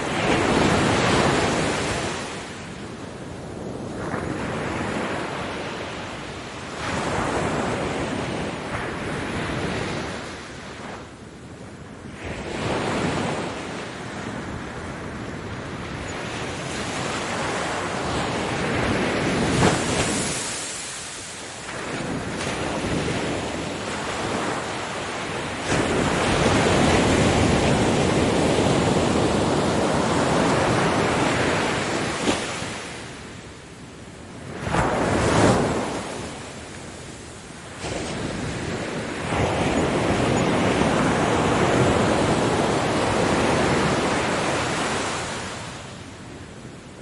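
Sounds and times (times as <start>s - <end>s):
ocean waves breaking on beach: 0.0s - 47.0s.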